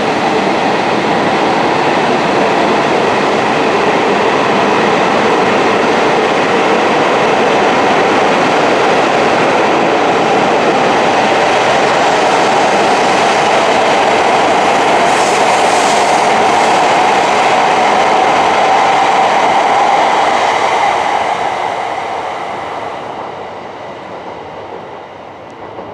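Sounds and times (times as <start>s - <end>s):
train rushing past: 0.0s - 25.9s.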